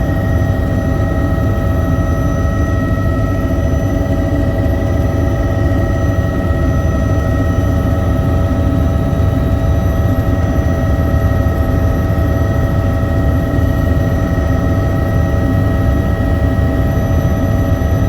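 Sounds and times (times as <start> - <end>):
helicopter engine whine: 0.0 - 18.0
helicopter rotor rumble: 0.0 - 18.0.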